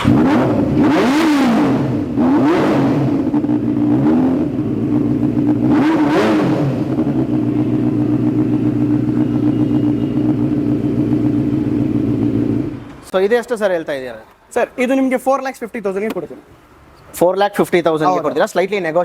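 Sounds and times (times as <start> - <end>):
motorcycle engine revving and idling: 0.0 - 13.1.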